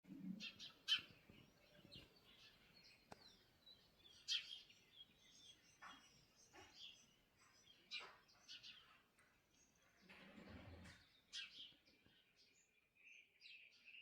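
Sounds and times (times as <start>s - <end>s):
small birds chirping: 0.1s - 14.0s
sharp bird calls: 0.4s - 7.0s.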